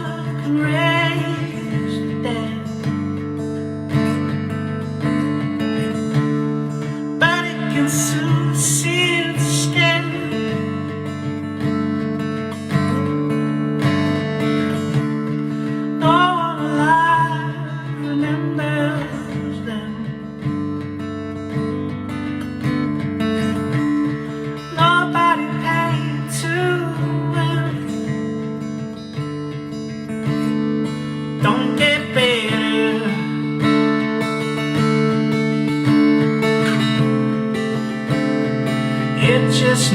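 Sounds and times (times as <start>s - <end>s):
person singing: 0.0s - 3.3s, 5.2s - 11.0s, 15.1s - 20.8s, 23.4s - 29.4s, 30.3s - 34.6s, 38.7s - 39.9s
acoustic guitar strumming: 0.0s - 39.9s.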